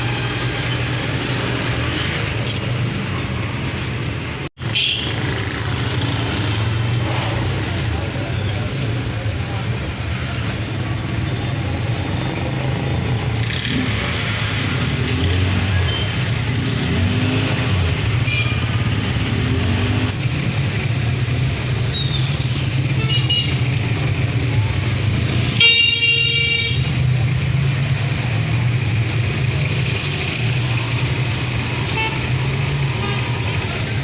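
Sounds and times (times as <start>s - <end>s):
vehicle engines running: 0.0s - 34.0s
car horn: 4.7s - 5.2s, 22.9s - 23.6s, 25.5s - 27.0s, 31.9s - 32.4s.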